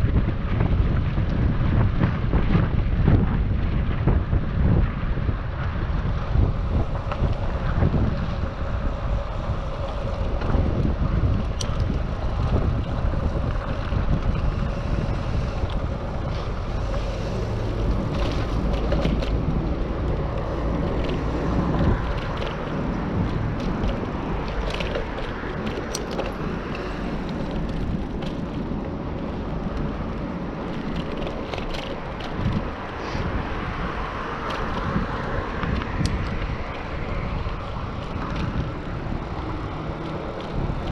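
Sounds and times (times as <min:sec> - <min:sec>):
tyre and road noise: 0:00.0 - 0:40.9
wind buffeting microphone: 0:00.0 - 0:40.9
small clicks or rattles: 0:09.9 - 0:14.9, 0:16.9 - 0:33.0, 0:33.9 - 0:40.9.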